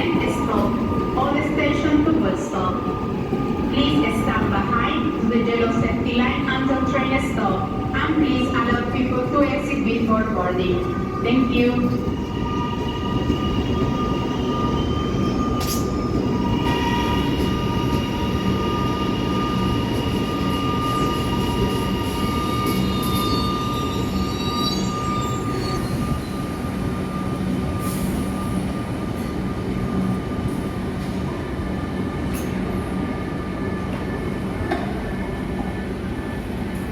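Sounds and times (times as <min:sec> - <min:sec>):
electric train rumbling: 0:00.0 - 0:36.9
high squeals: 0:18.4 - 0:26.6.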